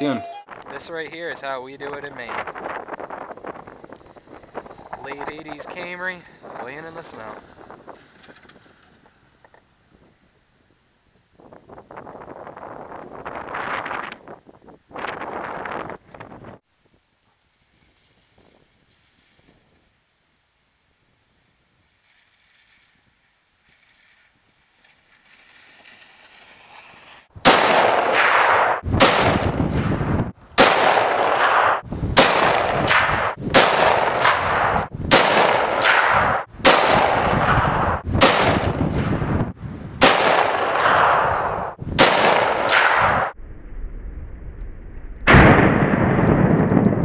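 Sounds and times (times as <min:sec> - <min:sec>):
dull sustained blast: 0:27.4 - 0:47.0
rifle shots with rumbling echo: 0:27.4 - 0:47.0.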